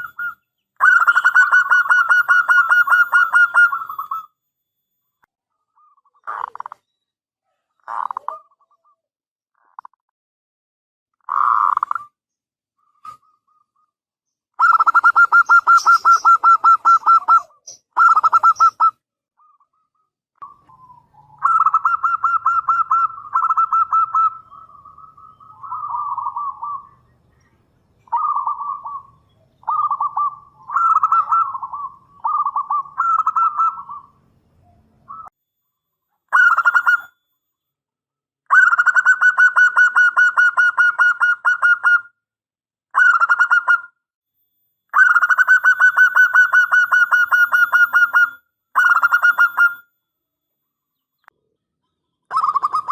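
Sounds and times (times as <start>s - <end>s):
dove cooing: 0.0s - 4.2s, 7.8s - 9.0s, 14.6s - 27.0s, 28.0s - 35.3s, 52.3s - 52.9s.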